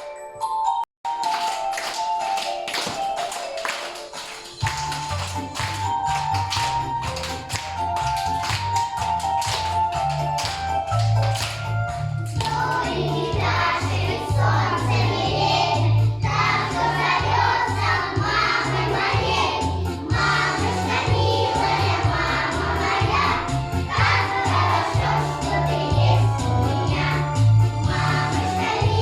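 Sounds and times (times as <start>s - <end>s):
children singing: 12.4s - 29.0s.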